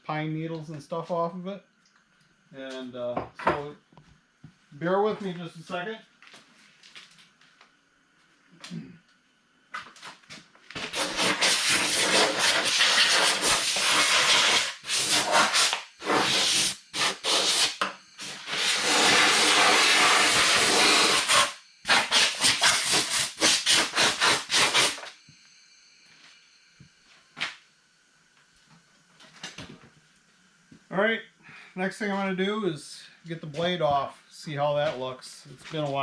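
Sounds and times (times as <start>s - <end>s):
compressed air blow gun hissing: 10.9s - 25.1s.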